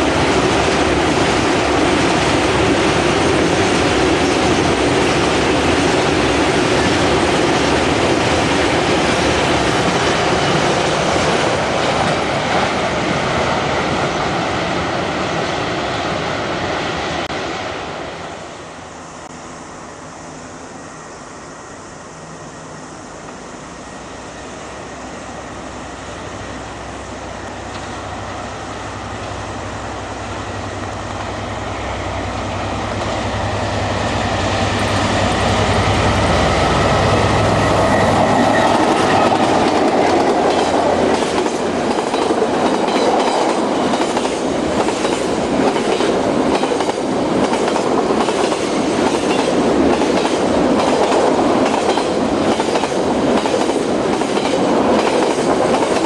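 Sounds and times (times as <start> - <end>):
train wheels clickety-clack: 0.0 - 17.4, 32.8 - 56.0
locomotive engine drone: 16.1 - 45.5.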